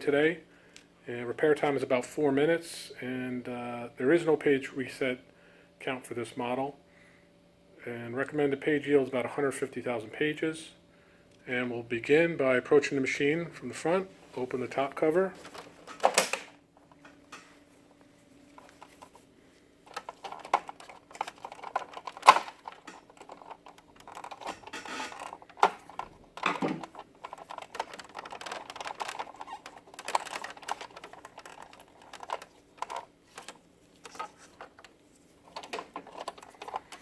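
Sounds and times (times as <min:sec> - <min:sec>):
plastic parts clicking and rattling: 0:15.4 - 0:17.5, 0:18.5 - 0:19.2, 0:19.8 - 0:37.0
sharp plastic snap: 0:16.0 - 0:16.6.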